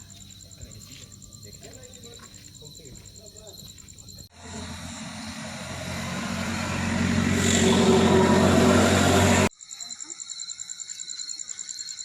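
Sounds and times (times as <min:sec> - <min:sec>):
vehicle engine running: 0:04.3 - 0:09.5.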